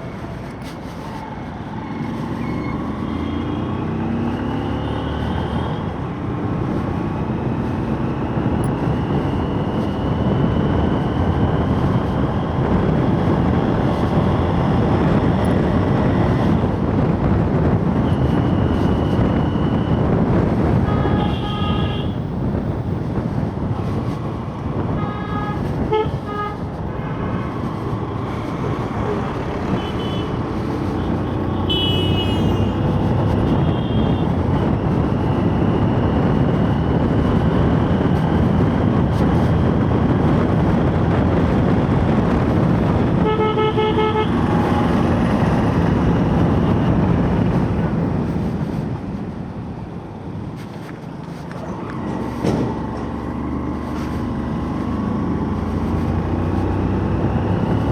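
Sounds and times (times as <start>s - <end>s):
wind noise: 0.0s - 57.9s
vehicle horns honking: 20.8s - 22.3s, 25.0s - 27.5s, 29.7s - 30.4s, 31.5s - 34.3s, 43.1s - 44.9s.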